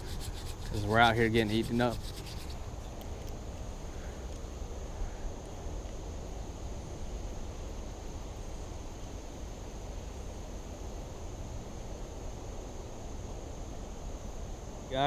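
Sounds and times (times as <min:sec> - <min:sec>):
high-pitched insect drone: 0:00.0 - 0:03.0, 0:09.5 - 0:15.0.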